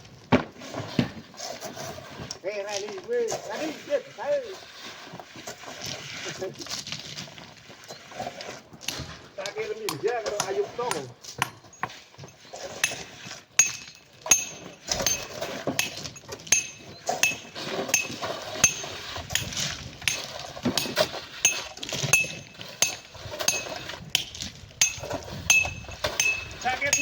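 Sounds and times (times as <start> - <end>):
metal tools clinking on rock: 9.9 - 27.0.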